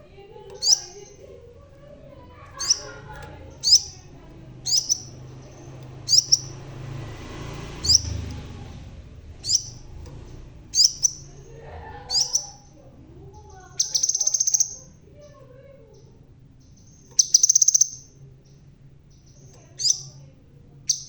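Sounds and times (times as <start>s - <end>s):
bird sharp high chirps: 0.6s - 1.2s, 2.6s - 4.0s, 4.6s - 6.7s, 7.8s - 8.3s, 9.4s - 9.9s, 10.7s - 11.3s, 12.1s - 12.6s, 13.8s - 15.0s, 16.6s - 20.2s.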